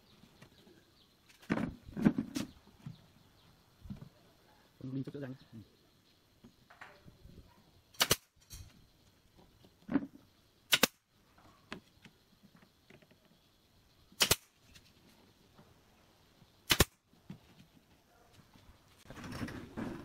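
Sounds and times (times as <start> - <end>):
nail gun cracks: 8.0 - 8.4, 10.7 - 11.0, 14.2 - 14.6, 16.7 - 17.0.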